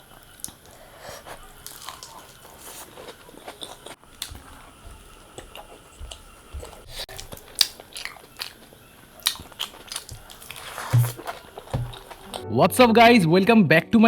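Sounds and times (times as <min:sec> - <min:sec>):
person biting and chewing food: 0:00.0 - 0:12.4
sharp crunches and clicks: 0:01.6 - 0:12.4.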